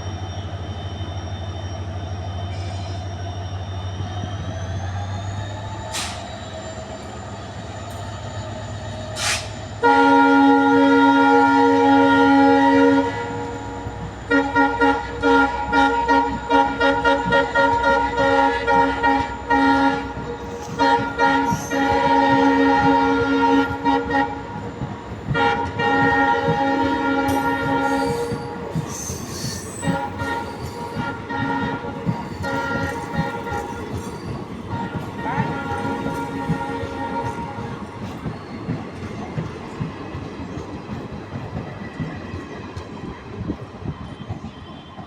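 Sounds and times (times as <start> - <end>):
train wheels clattering on rails: 2.4 - 10.1, 11.5 - 45.0
locomotive horn blasts: 9.2 - 38.2.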